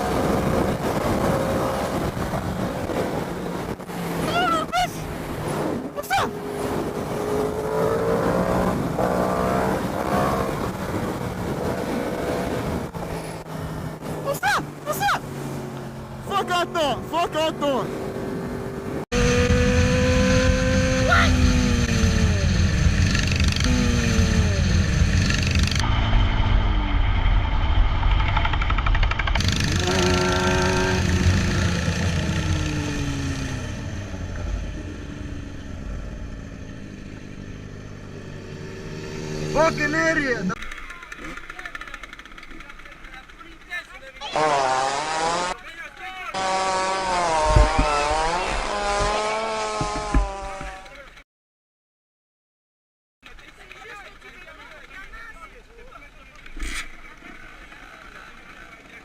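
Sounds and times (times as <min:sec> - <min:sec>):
wind rush: 0:00.0 - 0:14.2
vehicle passing: 0:00.0 - 0:40.6
motorcycle engine: 0:05.0 - 0:17.3, 0:17.9 - 0:45.7, 0:46.3 - 0:51.0
motorcycle engine running: 0:19.2 - 0:26.0, 0:27.9 - 0:40.0.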